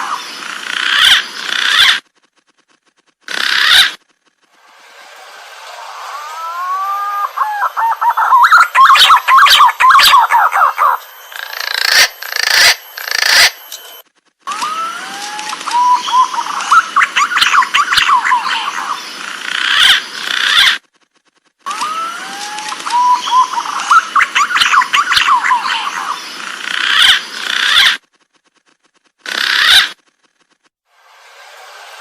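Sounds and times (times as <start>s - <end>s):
green pigeon calling: 3.3s - 4.0s, 6.4s - 13.7s, 14.6s - 20.8s, 22.8s - 28.0s.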